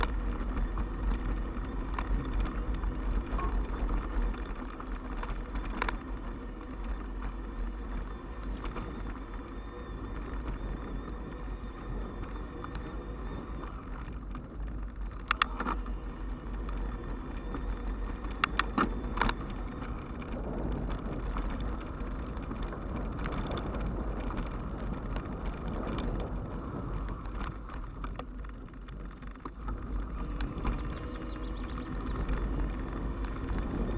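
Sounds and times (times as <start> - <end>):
tyres rolling on road: 0.0 - 33.9
wind rumbling on microphone: 0.0 - 33.9.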